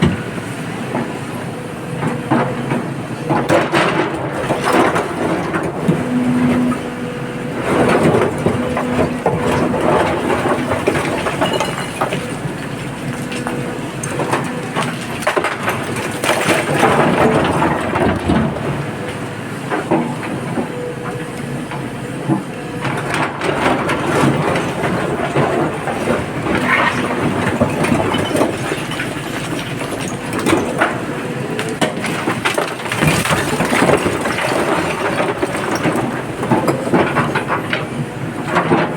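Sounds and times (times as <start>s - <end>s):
diesel excavator running: 0.0s - 38.9s
rock and earth clattering: 7.4s - 20.7s, 22.8s - 38.9s.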